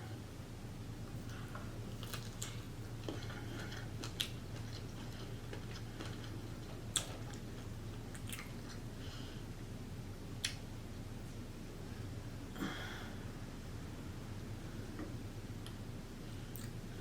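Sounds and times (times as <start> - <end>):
steady low hum: 0.0 - 17.0
person chewing with wet mouth sounds: 1.3 - 9.0.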